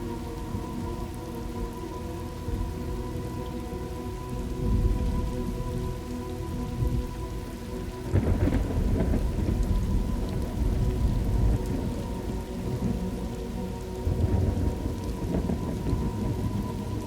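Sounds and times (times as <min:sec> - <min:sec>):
steady rain: 0:00.0 - 0:17.0
rolling thunder: 0:04.6 - 0:05.6, 0:08.1 - 0:13.0, 0:14.0 - 0:16.8.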